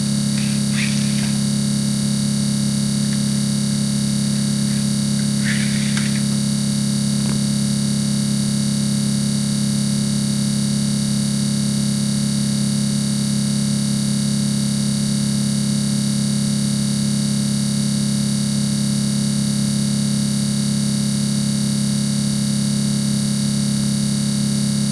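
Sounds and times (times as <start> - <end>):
hiss: 0.0 - 2.0, 4.0 - 6.6
electronic buzzing hum: 0.0 - 9.4
scratchy crackle: 0.2 - 7.5.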